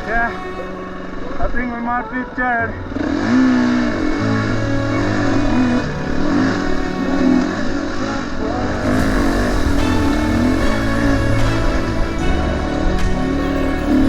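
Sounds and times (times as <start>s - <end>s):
dirt bike engine revving: 8.7s - 14.0s.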